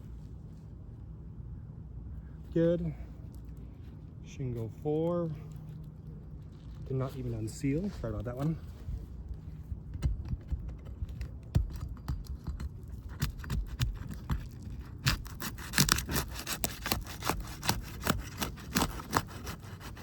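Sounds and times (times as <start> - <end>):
crowbar scraping shingles: 10.1 - 20.0.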